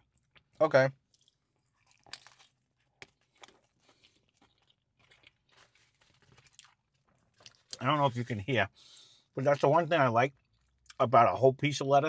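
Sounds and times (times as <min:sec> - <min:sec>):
crunching and chewing: 0:00.0 - 0:08.3, 0:09.2 - 0:11.0.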